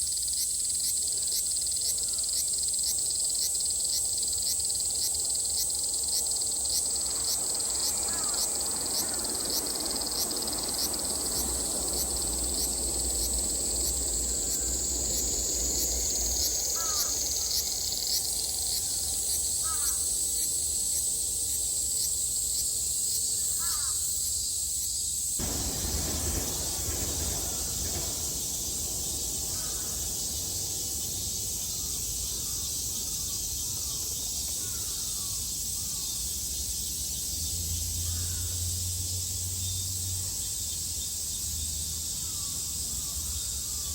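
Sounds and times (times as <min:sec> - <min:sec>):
cicadas droning: 0:00.0 - 0:43.9.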